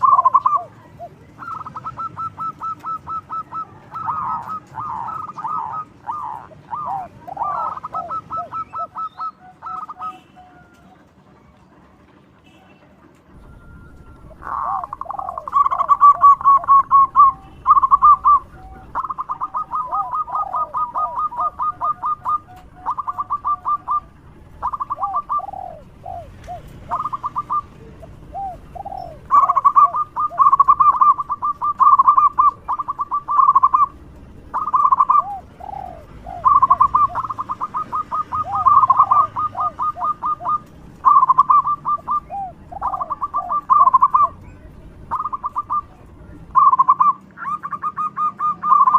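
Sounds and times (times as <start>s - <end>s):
dove cooing staccato notes: 0.0s - 11.8s, 12.4s - 48.9s.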